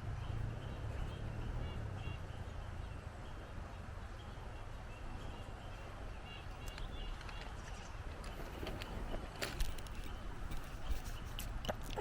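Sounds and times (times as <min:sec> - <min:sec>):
wind buffeting microphone: 0:04.5 - 0:12.0.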